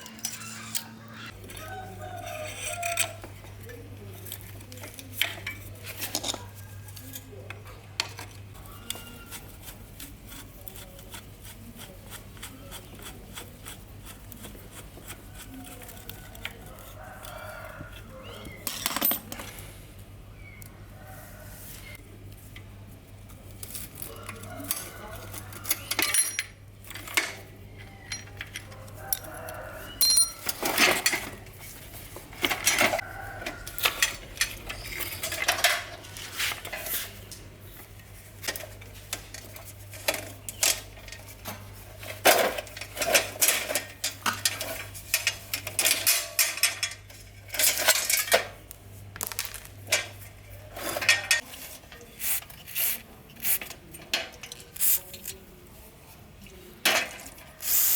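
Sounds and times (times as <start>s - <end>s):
metallic clinks and scrapes of tools: 0.0s - 1.0s, 2.2s - 9.4s, 23.7s - 31.7s, 32.3s - 37.2s, 38.4s - 48.6s.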